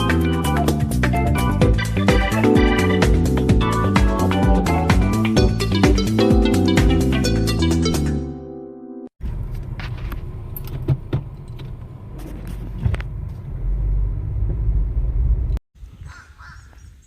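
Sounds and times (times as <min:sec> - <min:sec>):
guitar music: 0:00.0 - 0:09.1
low vehicle rumble: 0:09.2 - 0:15.6.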